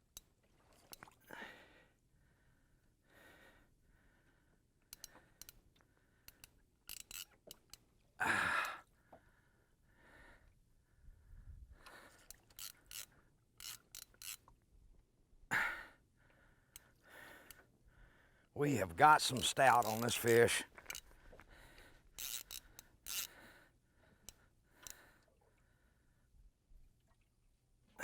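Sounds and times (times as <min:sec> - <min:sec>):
fly reel ratchet clicking: 0:06.3 - 0:07.8, 0:12.3 - 0:14.4, 0:22.2 - 0:23.3.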